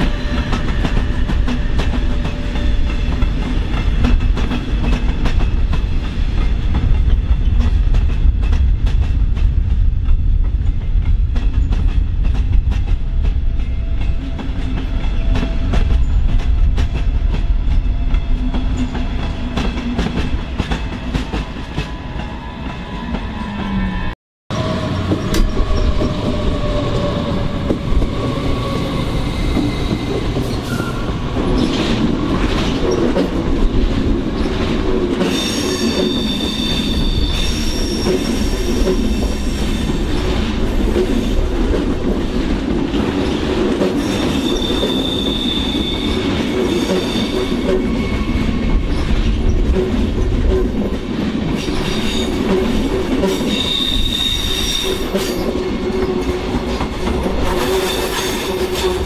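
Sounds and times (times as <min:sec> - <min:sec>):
train wheels rumbling on rails: 0:00.0 - 0:59.0
high wheel squeal: 0:28.4 - 0:31.2, 0:35.4 - 0:38.8, 0:44.4 - 0:48.6, 0:53.5 - 0:55.4.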